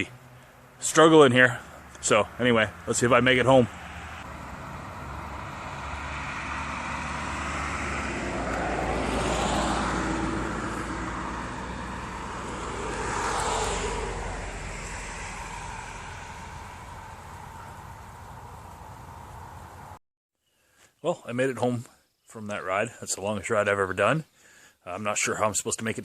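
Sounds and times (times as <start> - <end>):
vehicles passing: 0.0 - 20.0
low rumble: 10.3 - 20.0.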